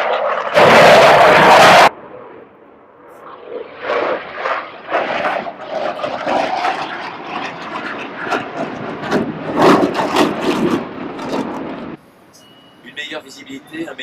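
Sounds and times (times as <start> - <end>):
aircraft engine: 0.0 - 12.8.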